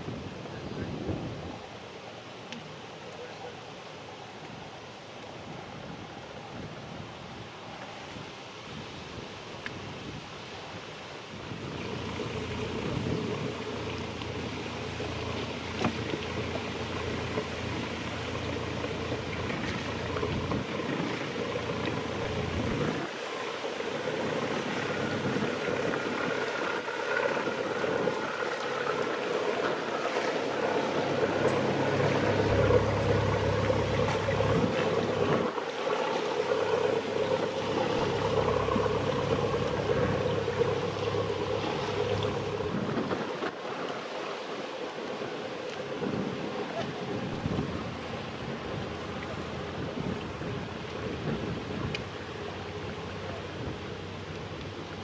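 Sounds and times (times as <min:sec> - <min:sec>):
wind buffeting microphone: 0:00.0 - 0:01.8, 0:11.2 - 0:55.0
water noise: 0:00.0 - 0:55.0
motor boat engine: 0:11.4 - 0:44.1, 0:45.9 - 0:55.0.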